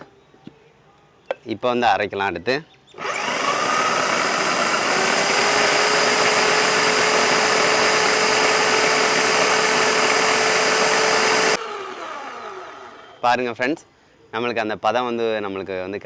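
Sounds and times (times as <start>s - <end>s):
blades grinding coconut paste: 3.0s - 11.6s
electric drill motor whine: 3.0s - 13.2s.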